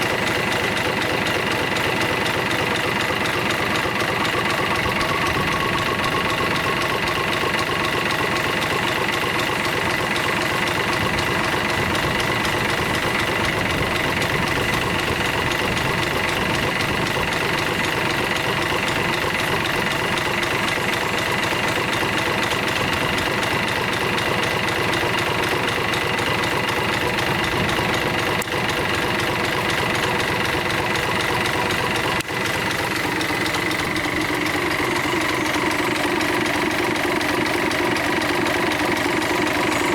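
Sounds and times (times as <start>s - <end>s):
diesel engine running: 0.0s - 39.9s
high-pitched engine whine: 30.8s - 39.9s.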